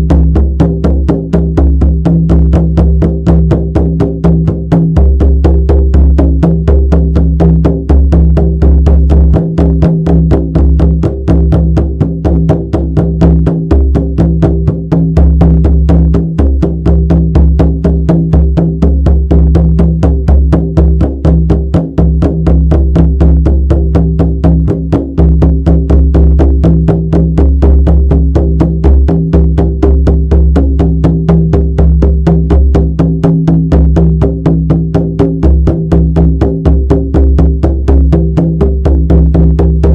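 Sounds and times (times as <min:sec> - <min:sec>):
frame drum beaten fast: 0:00.0 - 0:39.9.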